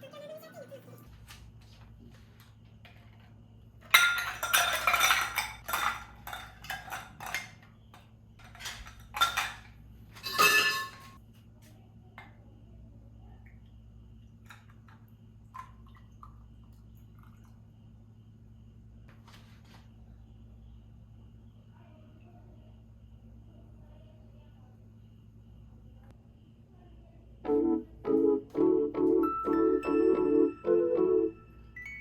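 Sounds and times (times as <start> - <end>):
household objects clattering: 2.8 - 11.2.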